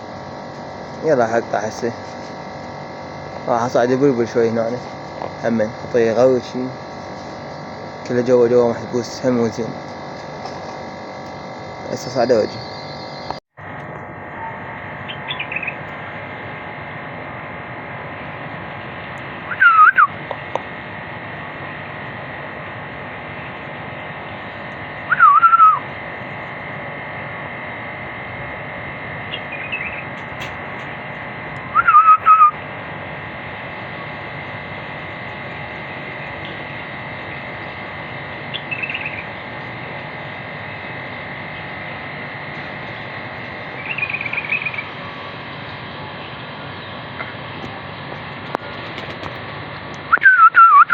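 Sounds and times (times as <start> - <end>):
electrical hum: 0.0 - 50.9
faint short bird calls: 14.4 - 15.8, 19.5 - 20.2, 25.0 - 25.9, 29.3 - 30.1, 31.6 - 32.6, 38.5 - 39.3, 43.8 - 45.3
bird whistled calls: 15.1 - 15.8, 19.5 - 20.2, 25.0 - 25.9, 29.3 - 30.1, 31.6 - 32.6, 38.5 - 39.3, 43.8 - 44.9, 50.1 - 50.9.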